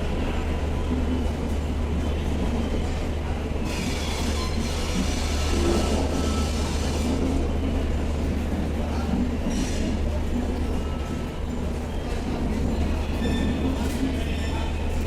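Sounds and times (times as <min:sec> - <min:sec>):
train rumbling on rails: 0:00.0 - 0:15.0
wheel squeal on rail: 0:03.6 - 0:07.5, 0:13.0 - 0:14.7.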